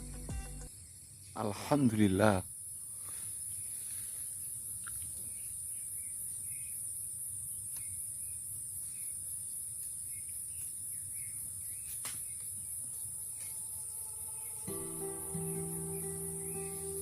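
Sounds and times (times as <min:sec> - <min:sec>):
high-pitched insect chorus: 0:12.6 - 0:17.0.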